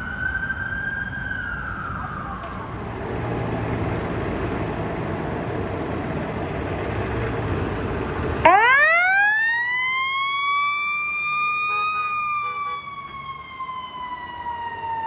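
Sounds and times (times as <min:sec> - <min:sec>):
engine and road rumble: 0:00.0 - 0:15.0
fire truck siren wailing: 0:00.0 - 0:15.0.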